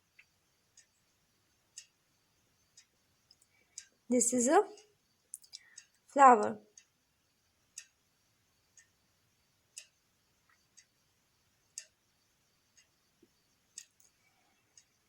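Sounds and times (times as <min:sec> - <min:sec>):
clock ticking faintly: 0:00.0 - 0:15.0.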